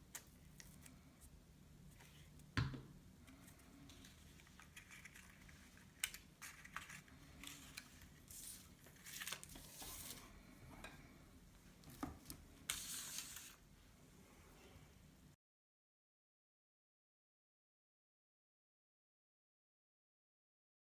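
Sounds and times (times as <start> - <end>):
paper rustling and crinkling: 3.3 - 10.4, 11.9 - 13.6.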